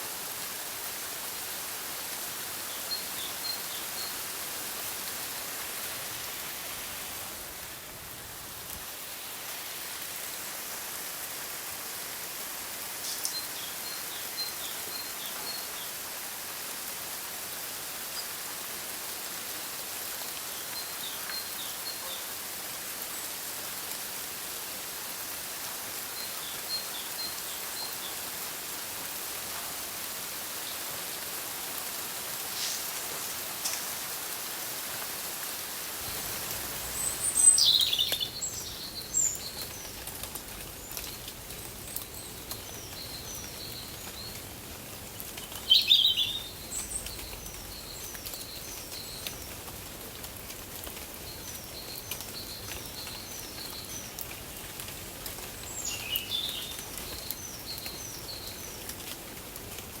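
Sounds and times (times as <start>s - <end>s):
rain-like hiss: 0.0s - 60.0s
bird singing: 37.0s - 39.9s, 45.6s - 49.2s, 55.7s - 58.6s.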